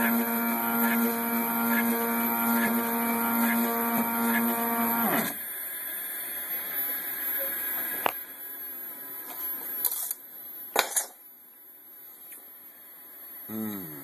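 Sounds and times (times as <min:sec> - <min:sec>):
stepper motor whining: 0:00.0 - 0:05.4.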